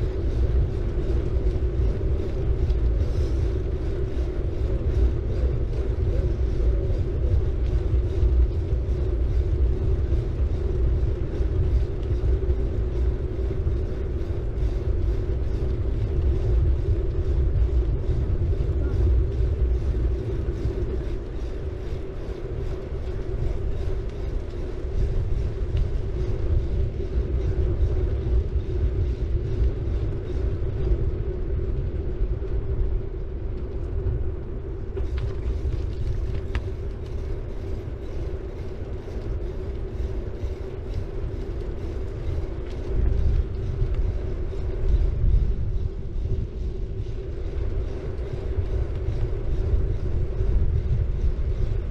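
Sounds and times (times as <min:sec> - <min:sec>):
bicycle tyres rolling on road: 0:00.0 - 0:51.9
steady hum: 0:00.0 - 0:51.9
wind rumble on microphone: 0:00.0 - 0:51.9.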